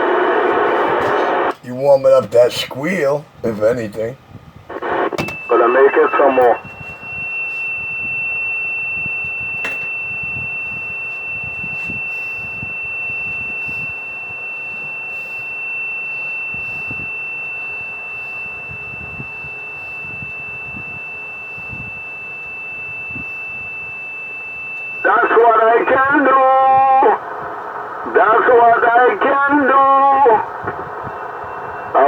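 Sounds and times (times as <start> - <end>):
radio background hiss: 0.0 - 8.1, 9.0 - 22.0, 24.6 - 32.0
radio click: 4.7 - 6.7, 28.0 - 30.8
high-pitched radio squeal: 4.8 - 27.2, 28.1 - 32.0.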